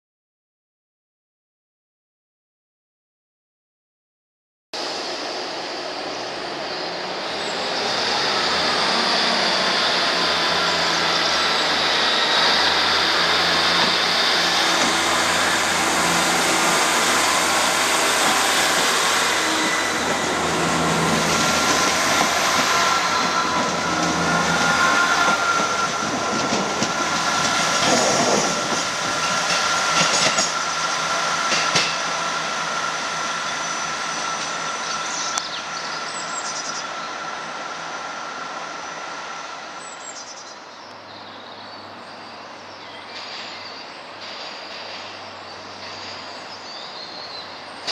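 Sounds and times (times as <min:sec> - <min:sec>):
diesel train running: 0:04.8 - 0:47.9
high-pitched wheel squeal: 0:07.4 - 0:26.6.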